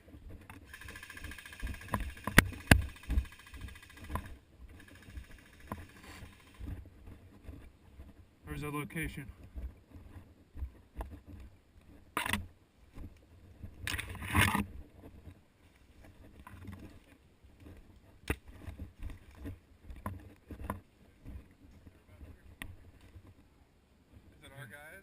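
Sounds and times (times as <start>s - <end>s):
rustling: 0.0s - 8.3s
sharp clicks: 0.5s - 6.7s.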